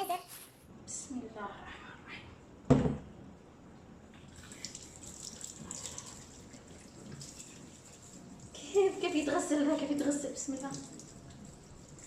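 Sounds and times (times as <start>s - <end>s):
tap water running into sink: 4.3s - 12.0s.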